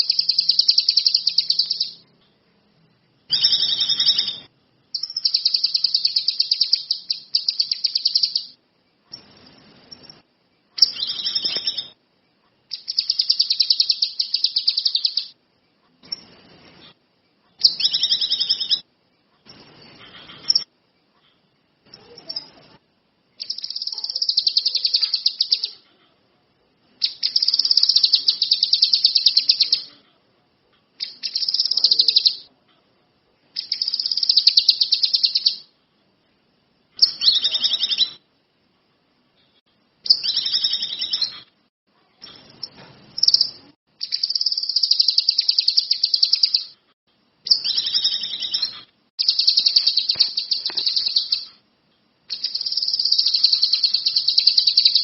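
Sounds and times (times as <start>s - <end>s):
songbird chattering trill: 0.0s - 2.0s, 3.3s - 9.3s, 10.8s - 12.0s, 12.7s - 15.4s, 17.6s - 18.8s, 23.4s - 25.8s, 27.0s - 29.9s, 31.0s - 32.5s, 33.6s - 35.7s, 42.6s - 46.8s, 47.5s - 51.6s, 52.3s - 55.0s.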